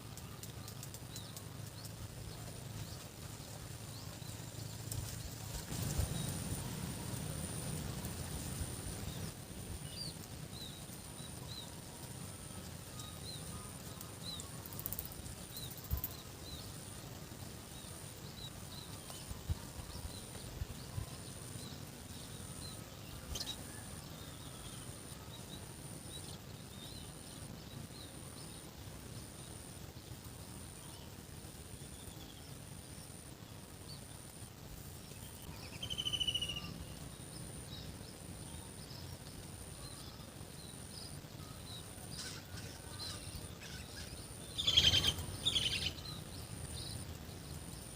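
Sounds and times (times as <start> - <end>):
faint bird chirps: 35.1 - 47.3
insect trilling: 35.4 - 37.7, 39.6 - 47.2.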